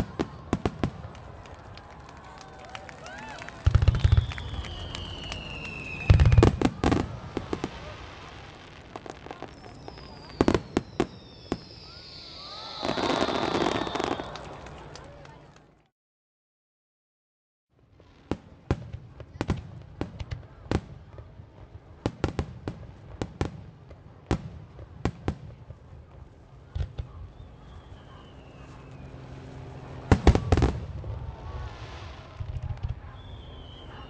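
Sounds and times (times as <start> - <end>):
fireworks crackling: 0.0 - 15.5, 18.1 - 34.0
falling firework whistles: 3.6 - 14.6, 26.8 - 29.4, 30.1 - 34.0.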